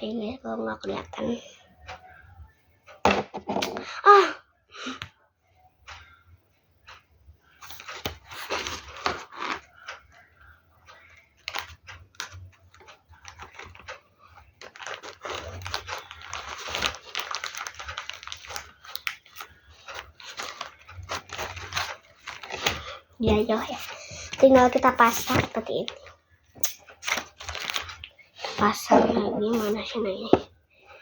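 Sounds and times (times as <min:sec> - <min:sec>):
paper rustling and crinkling: 0:07.6 - 0:10.0, 0:10.9 - 0:30.4.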